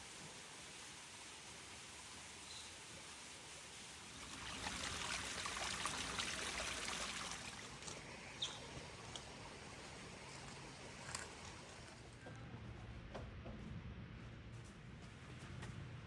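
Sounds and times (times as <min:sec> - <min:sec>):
water trickling and splashing: 0:00.0 - 0:12.1.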